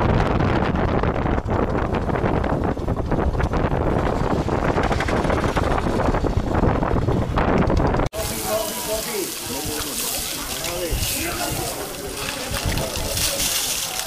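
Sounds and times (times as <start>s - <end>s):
wind buffeting microphone: 0.0s - 8.6s, 9.3s - 13.5s
vehicle running: 0.7s - 8.1s.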